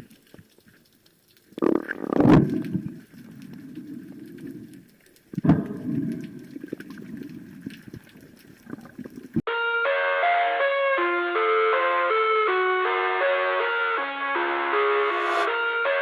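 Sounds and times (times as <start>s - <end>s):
underwater rushing and bubbling: 0.0s - 9.4s.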